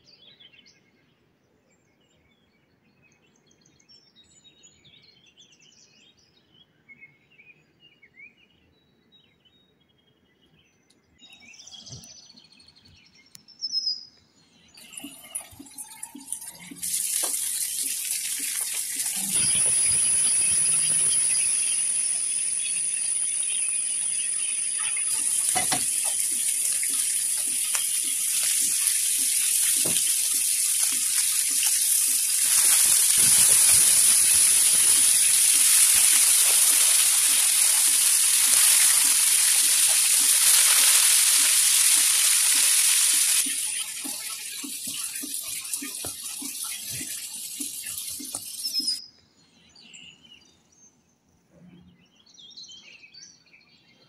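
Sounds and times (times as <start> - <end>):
fish sizzling in oil: 14.8 - 49.0.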